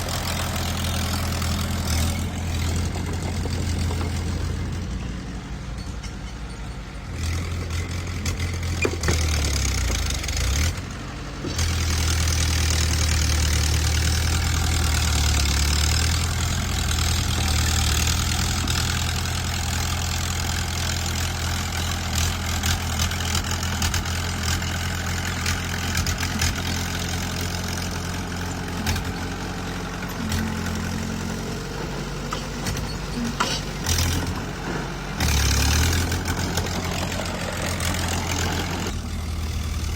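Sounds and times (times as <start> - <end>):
bulldozer diesel engine: 0.0 - 39.9
metal clanks and rattles: 1.2 - 10.8, 31.7 - 39.7.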